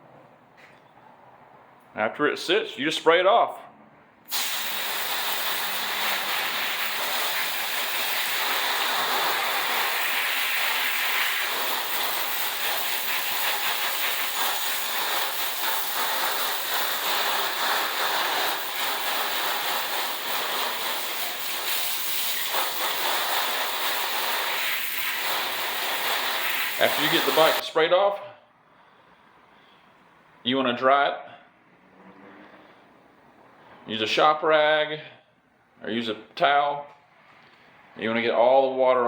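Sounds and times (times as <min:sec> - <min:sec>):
water spraying onto bicycle: 0:04.3 - 0:27.6.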